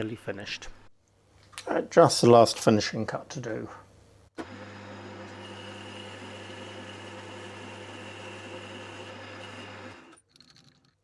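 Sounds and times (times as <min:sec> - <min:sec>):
metal lathe motor hum: 0:04.4 - 0:10.2.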